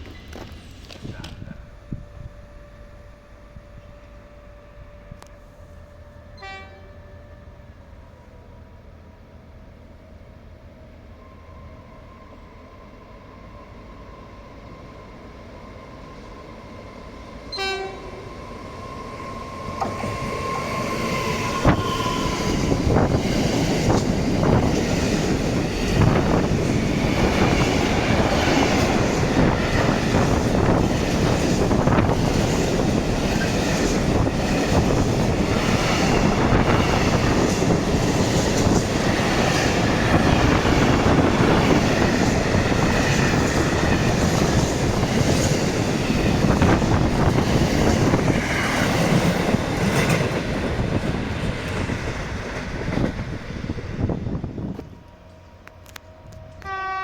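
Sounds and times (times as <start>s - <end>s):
freight train passing: 0.0s - 57.0s
train horn toot: 1.4s - 7.8s, 17.5s - 18.4s, 54.8s - 57.0s.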